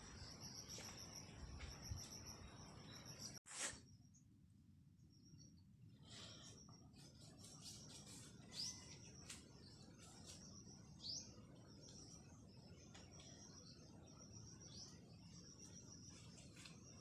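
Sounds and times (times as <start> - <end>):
faint bird chirps: 5.0 - 17.0.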